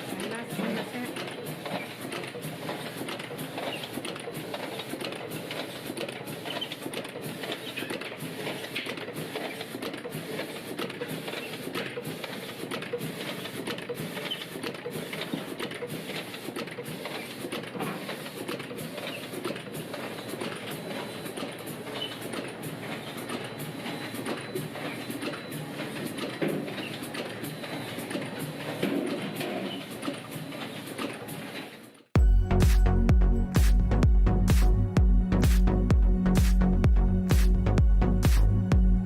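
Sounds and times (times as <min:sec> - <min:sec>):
machine clattering rhythmically: 0:00.0 - 0:39.0.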